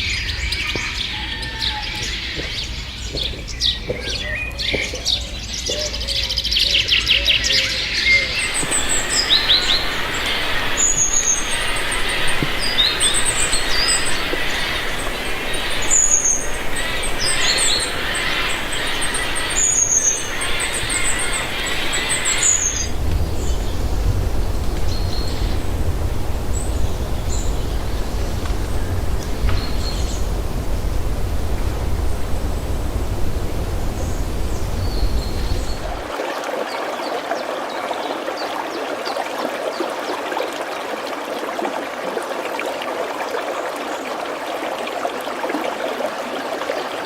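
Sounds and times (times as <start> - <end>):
birds singing and chirping: 0.0 - 36.1
steady hiss: 8.3 - 36.1.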